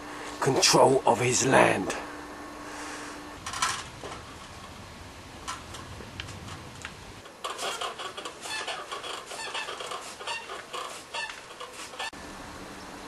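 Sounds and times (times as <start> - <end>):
birds calling: 7.2 - 13.0.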